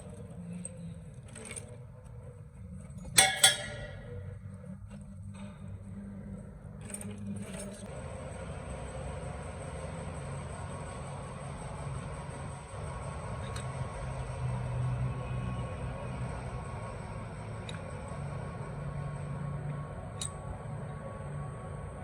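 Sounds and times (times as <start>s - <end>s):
low workshop hum: 0.0s - 22.0s
metallic clinks: 3.0s - 4.4s.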